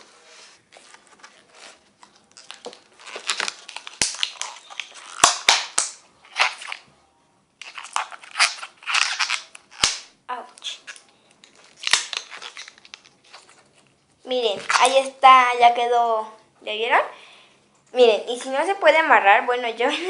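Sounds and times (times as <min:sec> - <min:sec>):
balloon rubber snaps: 0:05.1 - 0:06.6, 0:08.3 - 0:10.8.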